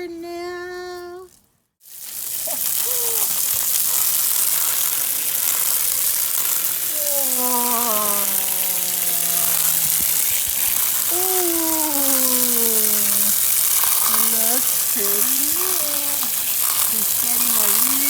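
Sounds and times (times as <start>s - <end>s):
hose spraying water: 1.8s - 18.0s
person exclaiming: 2.4s - 3.4s, 6.9s - 10.0s, 11.1s - 13.4s, 14.1s - 18.0s.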